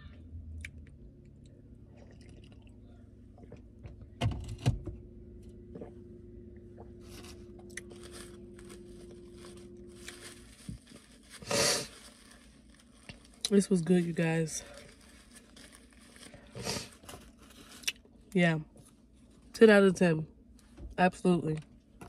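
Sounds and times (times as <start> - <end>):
chewing and crunching: 0.6 - 3.6.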